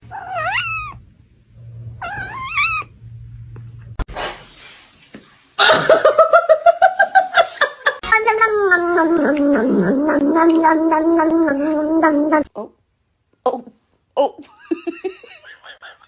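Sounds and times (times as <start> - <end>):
cat meowing: 0.0 - 1.0, 1.8 - 3.0
cat yowling: 0.0 - 1.0, 1.9 - 3.0.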